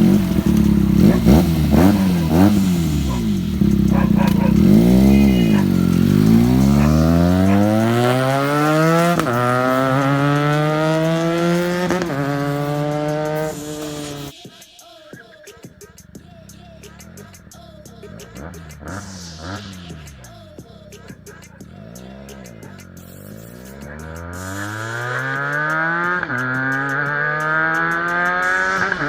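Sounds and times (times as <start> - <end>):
motorcycle gear upshifts: 0.0 - 13.7
motorcycle engine revving: 0.0 - 14.4, 15.6 - 29.0.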